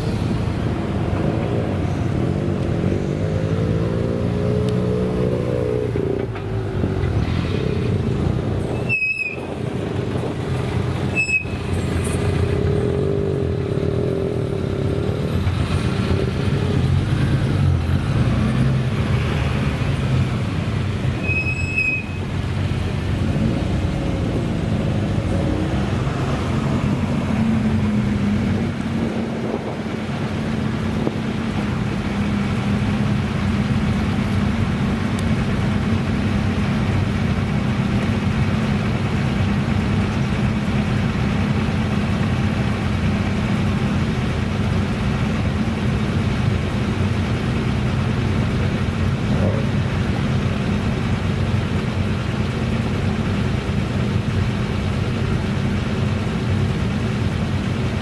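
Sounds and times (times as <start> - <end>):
car engine running: 22.2 - 58.0.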